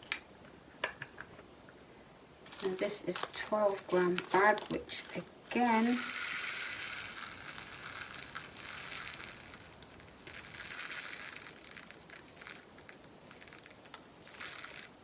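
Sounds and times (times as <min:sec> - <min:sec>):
plastic bag crinkling: 0:02.5 - 0:15.0
plastic beads pouring into pot: 0:02.5 - 0:15.0.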